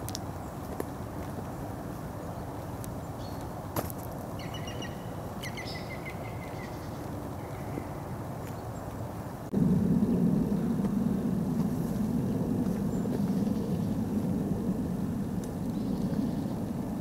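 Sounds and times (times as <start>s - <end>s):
low outdoor background rumble: 0.0s - 17.0s
bird chirping: 4.4s - 9.0s.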